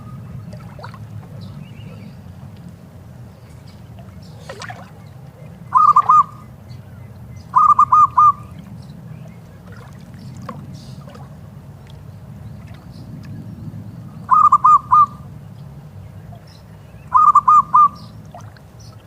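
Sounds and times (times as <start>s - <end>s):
steady low rumble: 0.0s - 19.0s
faint bird calls: 3.3s - 19.0s
dove cooing: 4.3s - 6.4s, 7.5s - 8.6s, 14.3s - 15.2s, 17.1s - 18.1s.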